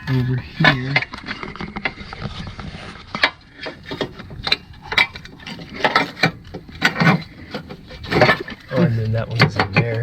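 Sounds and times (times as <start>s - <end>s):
electrical box clicks and knocks: 3.1s - 10.0s.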